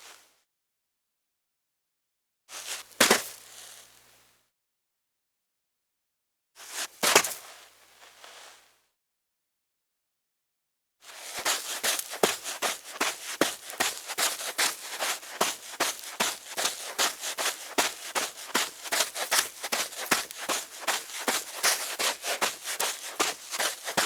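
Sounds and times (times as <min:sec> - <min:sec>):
footsteps on dry sand: 0:11.1 - 0:24.0.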